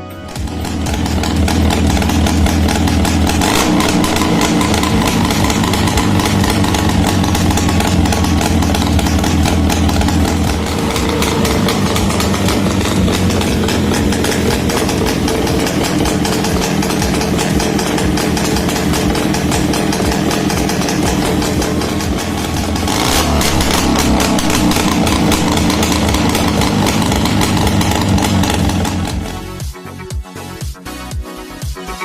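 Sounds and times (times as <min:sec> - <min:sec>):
two-stroke engine idling: 0:00.2 - 0:29.6.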